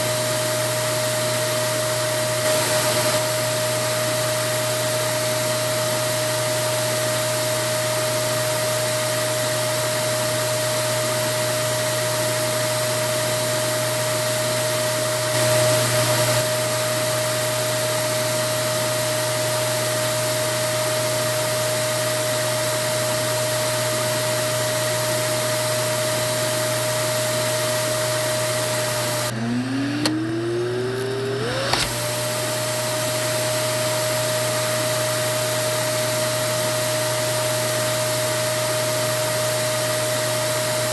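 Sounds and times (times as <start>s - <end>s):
vacuum cleaner motor whine: 0.0s - 40.9s
clicks: 29.9s - 30.4s, 31.0s - 32.1s.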